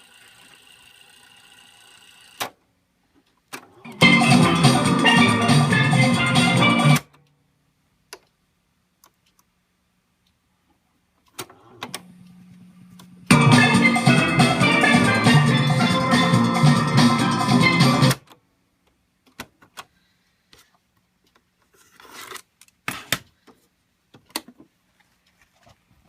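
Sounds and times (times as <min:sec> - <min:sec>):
music with drums from a boombox: 0:03.9 - 0:07.0, 0:13.3 - 0:18.2.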